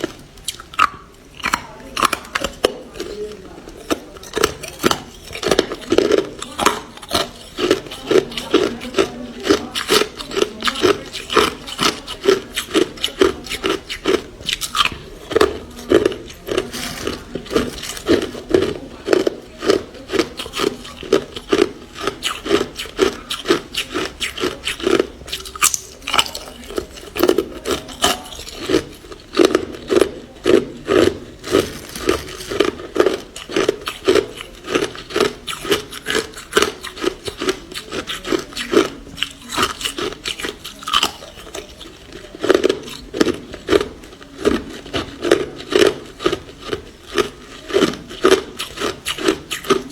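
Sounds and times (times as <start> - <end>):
ice crunching when chewed: 0.0 - 49.9.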